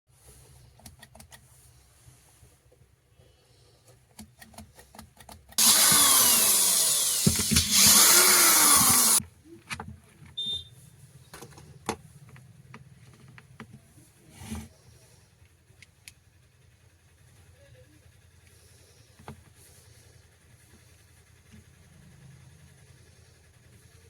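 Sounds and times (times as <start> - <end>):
electric drill running: 5.6 - 9.2.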